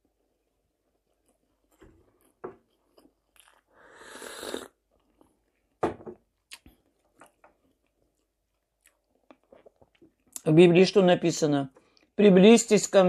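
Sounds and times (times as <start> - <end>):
person chewing: 1.0 - 5.8, 6.4 - 10.4
wet mouth smacks and clicks: 6.5 - 7.4.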